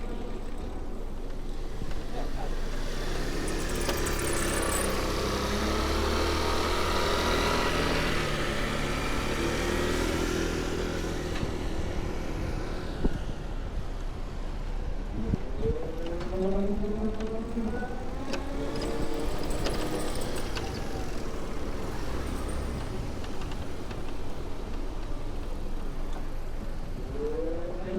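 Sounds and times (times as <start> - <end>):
vehicle engine running close: 0.0 - 27.9
engine rising in pitch: 2.6 - 12.1.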